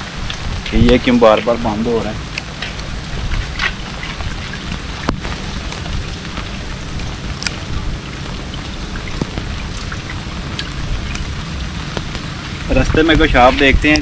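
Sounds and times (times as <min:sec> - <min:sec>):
steady rain: 0:00.0 - 0:14.0
drops ticking on microphone: 0:02.2 - 0:11.3.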